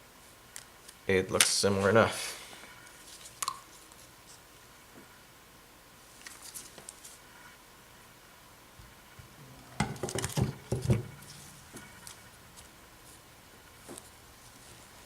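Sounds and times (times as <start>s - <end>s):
sharp knocks and clatter: 9.2s - 12.3s.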